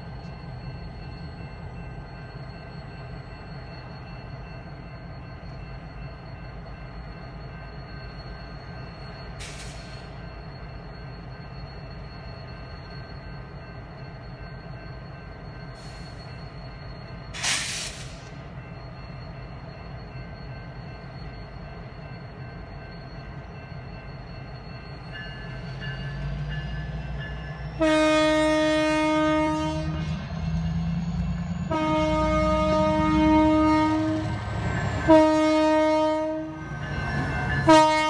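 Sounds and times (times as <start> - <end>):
freight train rumbling: 0.0 - 38.0
air brake hiss: 9.4 - 10.2, 15.8 - 16.4, 17.3 - 18.4.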